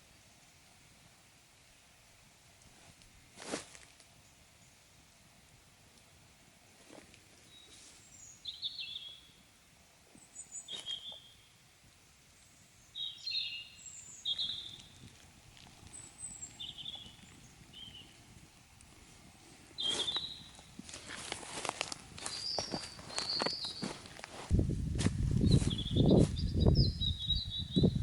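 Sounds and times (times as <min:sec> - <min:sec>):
faint outdoor background noise: 0:00.0 - 0:28.0
songbirds chirping: 0:07.2 - 0:28.0.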